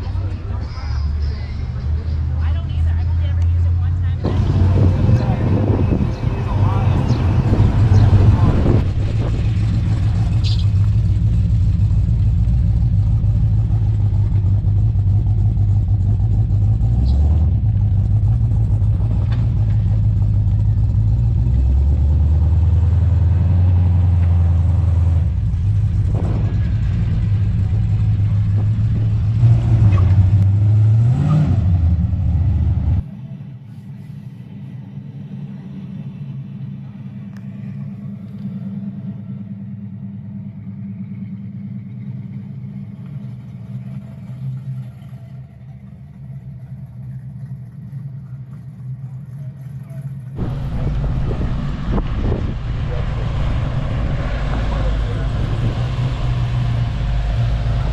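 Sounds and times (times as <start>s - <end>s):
car engine idling: 0.0s - 30.8s, 31.8s - 57.9s.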